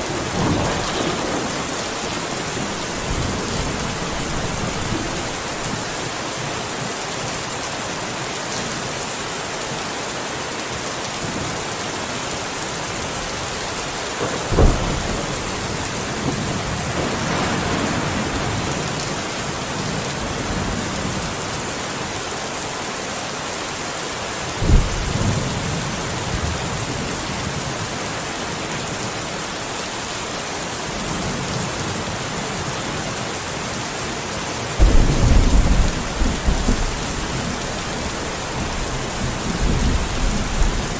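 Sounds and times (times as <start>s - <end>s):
thunderclaps rumbling: 0.0s - 6.1s, 14.2s - 21.2s, 24.6s - 27.2s, 34.8s - 40.9s
steady rain falling: 0.0s - 40.9s.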